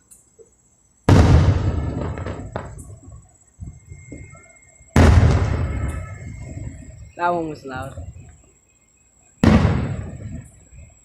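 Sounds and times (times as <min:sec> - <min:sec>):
aerial firework bursts: 0:01.1 - 0:02.9.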